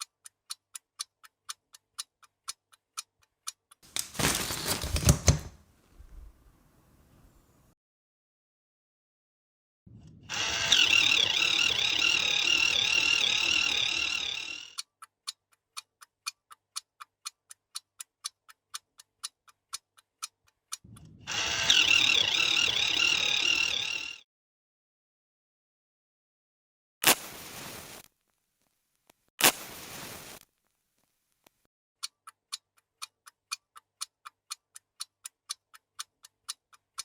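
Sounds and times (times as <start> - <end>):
clock ticking: 0.0 - 3.9, 10.1 - 24.2, 32.0 - 37.0
warbling alarm ringing: 10.3 - 14.8, 21.2 - 24.2.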